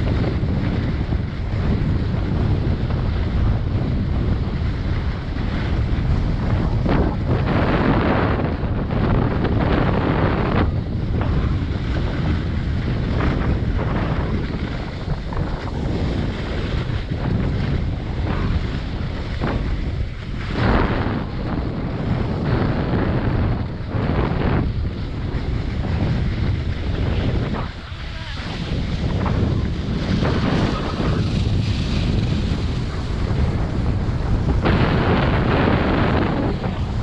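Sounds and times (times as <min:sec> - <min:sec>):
wind buffeting microphone: 0:00.0 - 0:37.0
skis sliding on snow: 0:09.0 - 0:37.0.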